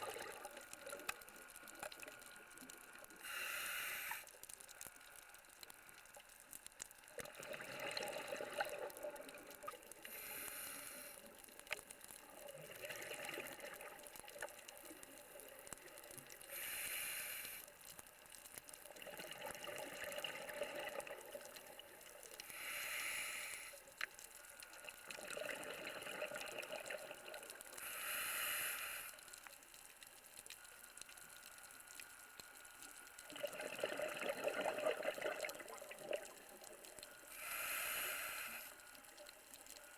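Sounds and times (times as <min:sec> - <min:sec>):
diver breathing through regulator: 0:03.2 - 0:04.3, 0:10.0 - 0:11.3, 0:16.5 - 0:17.7, 0:22.4 - 0:23.9, 0:27.8 - 0:29.2, 0:37.3 - 0:39.0
exhaled bubbles rushing: 0:33.4 - 0:36.4.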